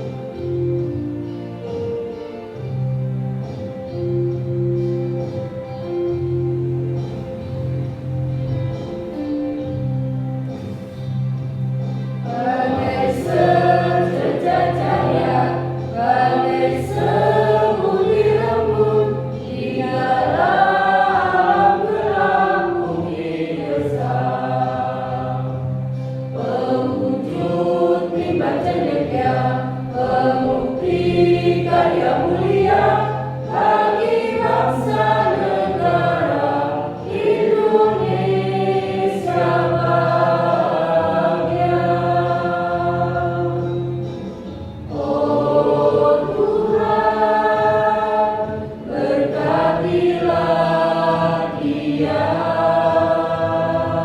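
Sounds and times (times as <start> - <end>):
instrumental accompaniment with bass: 0.0 - 54.0
choir singing: 12.2 - 54.0.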